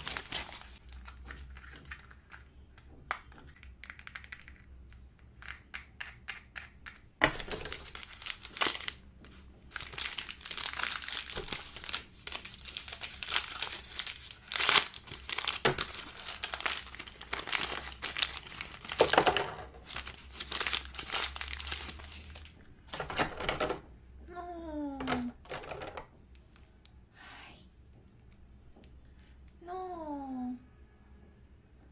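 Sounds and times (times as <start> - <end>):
plastic packaging crumpling and tearing: 0.0 - 2.4, 7.3 - 9.0, 9.7 - 22.6.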